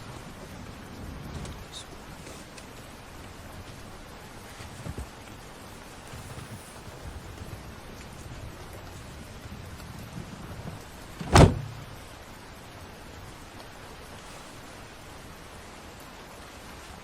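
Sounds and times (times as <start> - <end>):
heavy rain falling: 0.0 - 17.0
loud thump: 11.2 - 12.0.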